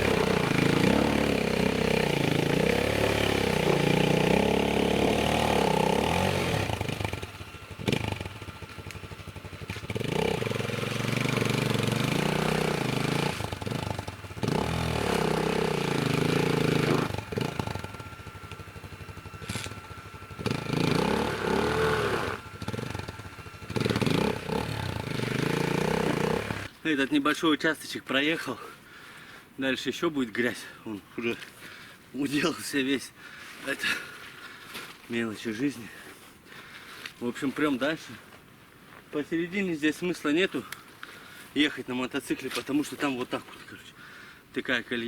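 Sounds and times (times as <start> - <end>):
motorcycle engine revving: 0.0 - 26.7.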